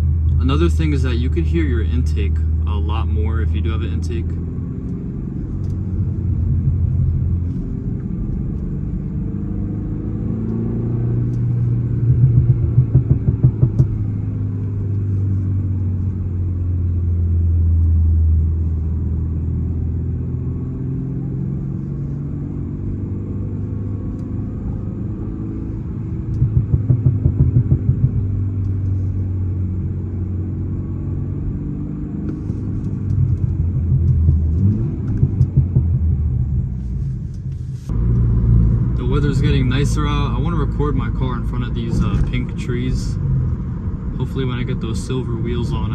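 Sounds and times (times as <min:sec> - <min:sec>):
car engine rumble: 0:00.0 - 0:45.9
road noise: 0:00.0 - 0:45.9
rapid engine pulsing: 0:11.9 - 0:14.2, 0:25.7 - 0:29.1, 0:32.4 - 0:45.9.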